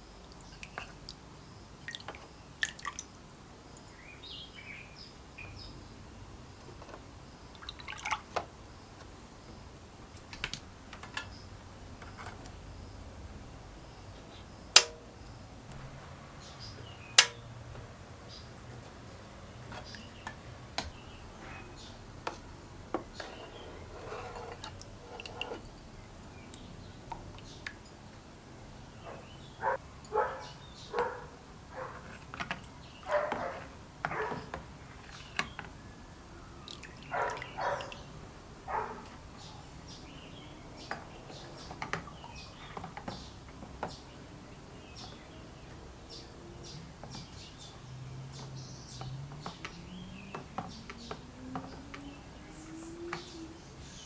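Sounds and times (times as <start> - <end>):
sharp clicks: 14.8 - 15.2, 17.2 - 17.5.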